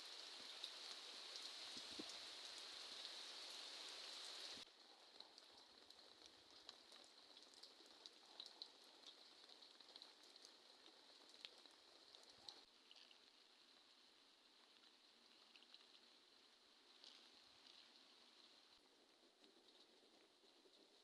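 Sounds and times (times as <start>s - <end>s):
soft rain hiss: 0.0s - 21.0s
raindrops ticking: 4.7s - 13.3s.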